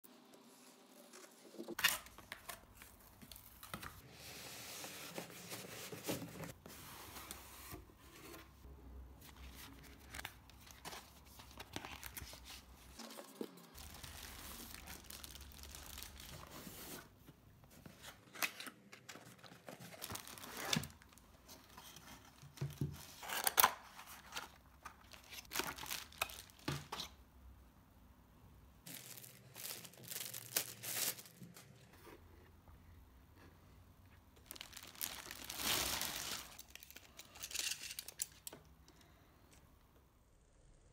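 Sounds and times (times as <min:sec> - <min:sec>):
packaging rustling: 0:09.7 - 0:17.1, 0:18.3 - 0:21.2, 0:23.1 - 0:27.1, 0:28.9 - 0:31.9, 0:34.4 - 0:38.5
packaging tearing and crinkling: 0:13.8 - 0:16.5, 0:28.9 - 0:31.6, 0:34.4 - 0:38.3.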